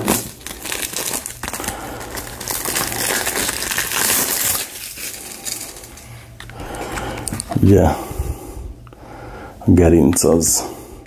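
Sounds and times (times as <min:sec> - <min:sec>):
plastic wrapping crinkling: 0:00.0 - 0:07.7.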